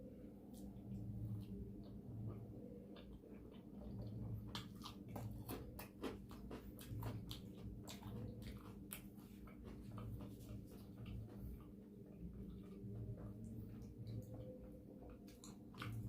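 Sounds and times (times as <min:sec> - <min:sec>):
steady low hum: 0:00.0 - 0:16.0
wet mouth clicks and smacks chewing: 0:01.8 - 0:16.0.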